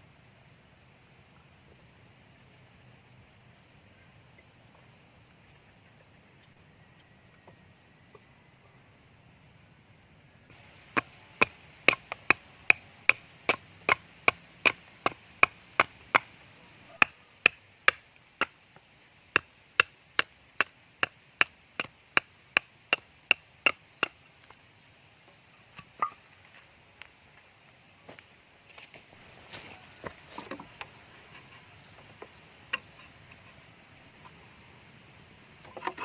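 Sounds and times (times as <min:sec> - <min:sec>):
blade chopping wood: 0:10.5 - 0:16.3.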